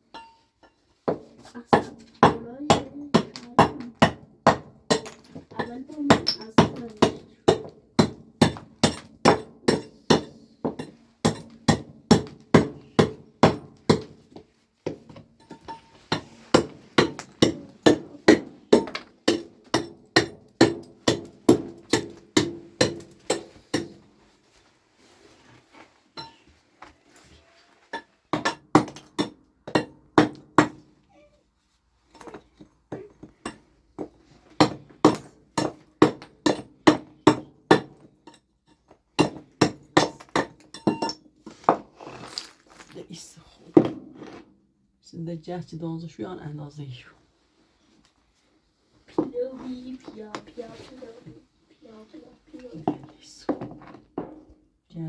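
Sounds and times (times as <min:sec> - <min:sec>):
hammering with metallic ring: 0:00.1 - 0:00.8, 0:39.2 - 0:41.3.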